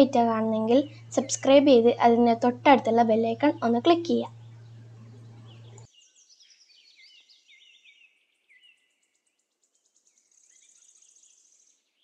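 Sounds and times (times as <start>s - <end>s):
high pulsing bird trill: 0.0s - 5.9s
bird chirping: 0.0s - 12.0s.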